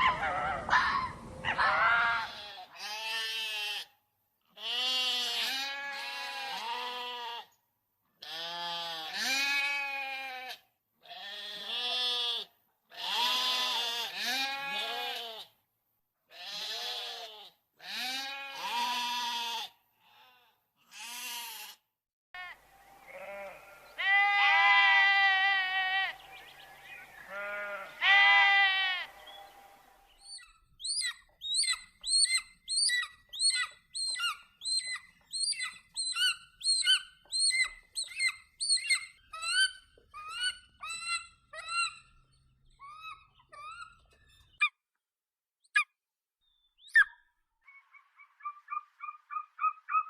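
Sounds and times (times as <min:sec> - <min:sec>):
livestock bleating: 0:01.5 - 0:03.9, 0:04.5 - 0:07.6, 0:08.2 - 0:15.5, 0:16.3 - 0:21.8, 0:22.4 - 0:29.8.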